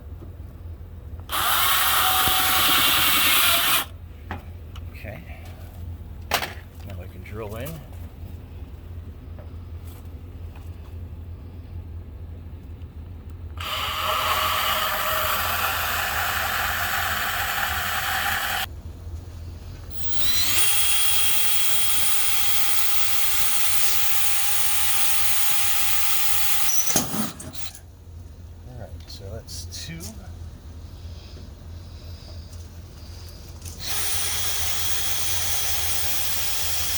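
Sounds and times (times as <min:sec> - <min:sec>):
power drill boring through metal: 0:01.3 - 0:03.9, 0:13.6 - 0:18.7, 0:19.9 - 0:27.7, 0:33.8 - 0:36.9.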